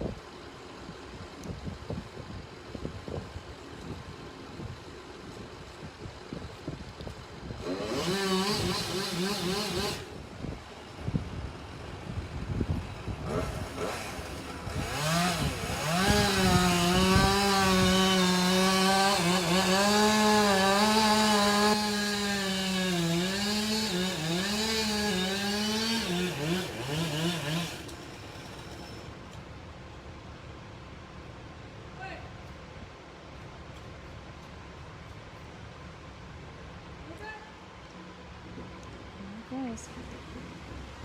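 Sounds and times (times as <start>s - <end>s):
chainsaw cutting wood: 7.4s - 10.2s, 13.2s - 29.2s.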